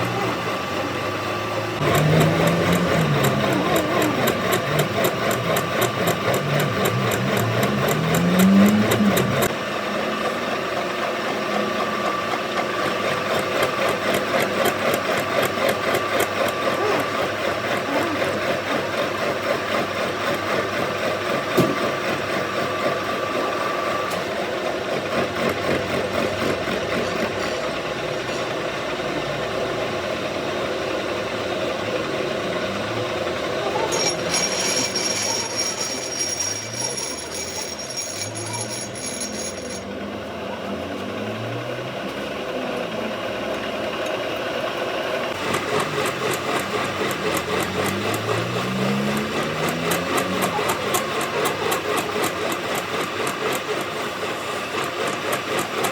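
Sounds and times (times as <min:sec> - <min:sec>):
machine tool running: 0:00.0 - 0:21.5, 0:30.7 - 0:39.9
steady high tone: 0:33.6 - 0:39.9
fast fine rattle: 0:33.9 - 0:39.8.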